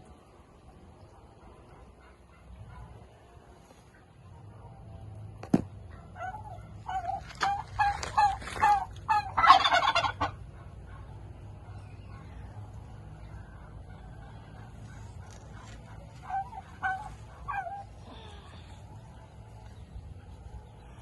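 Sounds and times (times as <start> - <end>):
turkey gobbling: 5.9 - 10.8, 13.8 - 18.3.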